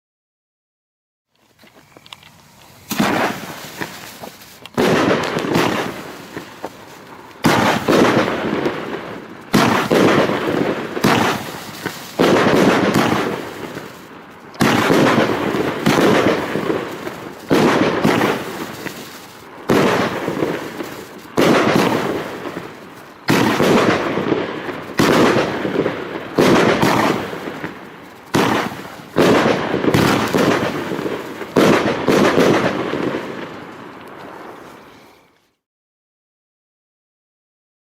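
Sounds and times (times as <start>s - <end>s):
fireworks bangs: 1.6s - 35.4s.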